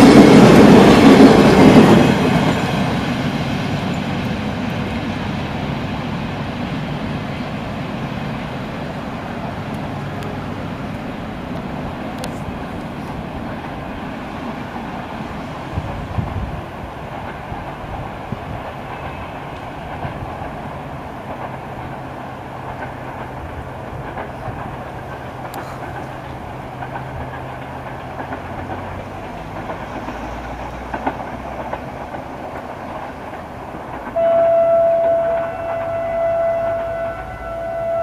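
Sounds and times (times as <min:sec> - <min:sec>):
train rail rumble: 0:00.0 - 0:38.0
train horn: 0:34.1 - 0:38.0.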